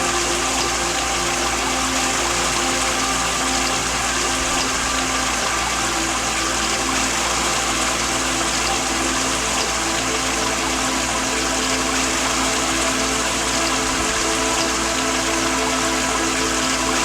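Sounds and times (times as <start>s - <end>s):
soft melody of held tones: 0.0s - 17.0s
waterfall rushing: 0.0s - 17.0s.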